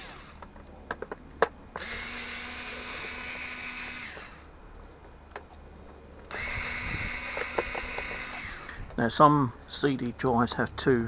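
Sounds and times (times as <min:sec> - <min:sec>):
power tool motor whirring: 0:00.0 - 0:00.5, 0:01.7 - 0:04.5, 0:06.2 - 0:09.0.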